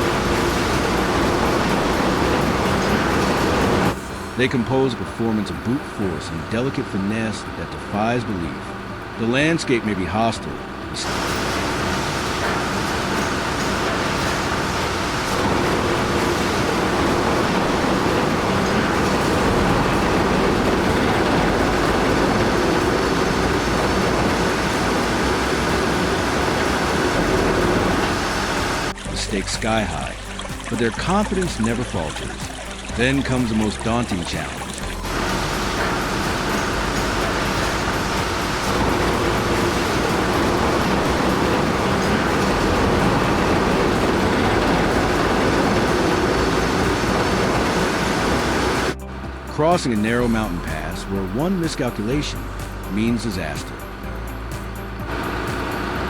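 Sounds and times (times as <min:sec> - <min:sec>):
heavy machinery running: 0:00.0 - 0:09.6, 0:10.5 - 0:56.0.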